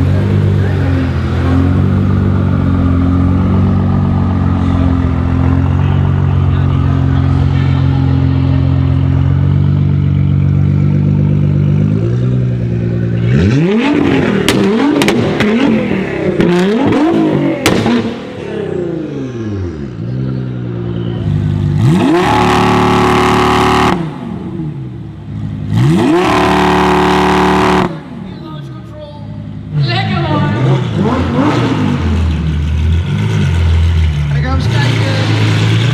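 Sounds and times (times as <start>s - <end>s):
car engine revving: 0.0s - 35.9s
exhaust pops and cracks: 17.6s - 18.1s.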